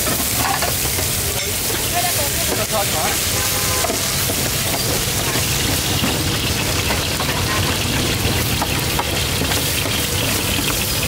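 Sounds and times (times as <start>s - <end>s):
noodles sizzling in pan: 0.0s - 11.0s
metal spatula scraping pan: 2.6s - 8.5s.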